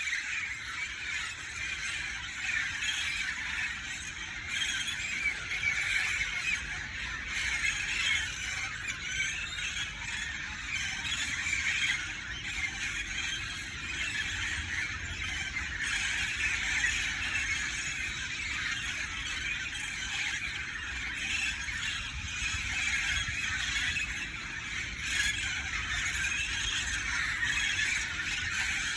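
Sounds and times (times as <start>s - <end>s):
parrots squawking: 18.4s - 28.9s.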